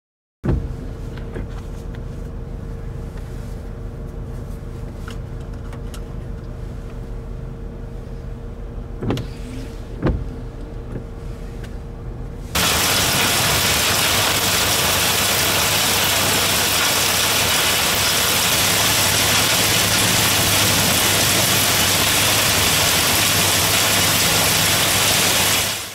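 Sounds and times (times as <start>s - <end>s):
car engine idling: 9.8s - 25.9s
heavy rain and hail on pavement: 12.6s - 25.9s.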